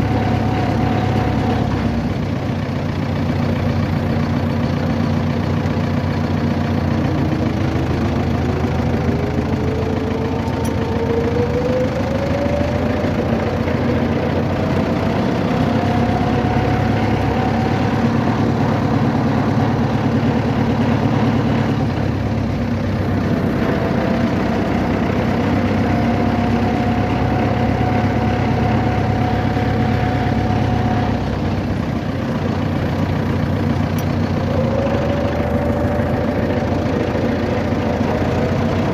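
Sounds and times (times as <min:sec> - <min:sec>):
vehicle engine humming: 0:00.0 - 0:38.9
thin rising whine: 0:06.9 - 0:31.8, 0:34.2 - 0:38.9.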